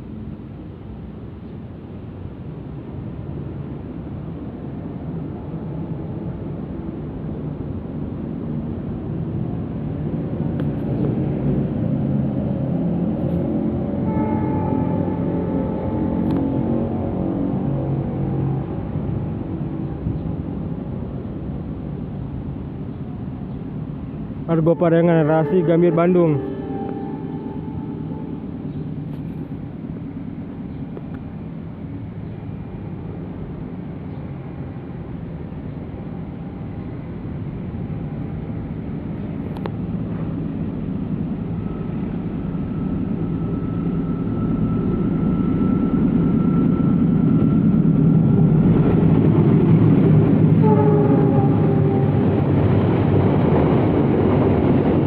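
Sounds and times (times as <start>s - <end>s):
passenger train rumbling: 0.0s - 55.0s
faint held tone: 14.0s - 17.2s, 25.2s - 29.0s.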